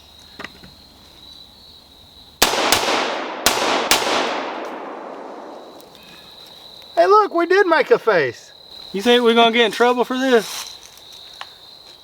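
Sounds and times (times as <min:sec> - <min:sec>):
gunshot echo: 0:02.4 - 0:05.8
rifle shots: 0:02.4 - 0:05.8.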